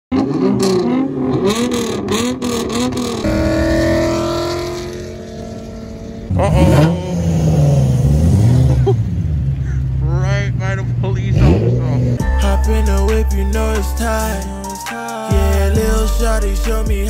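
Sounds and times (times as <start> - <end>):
exhaust cracks: 0.1 - 12.2
car engine revving: 0.1 - 17.0.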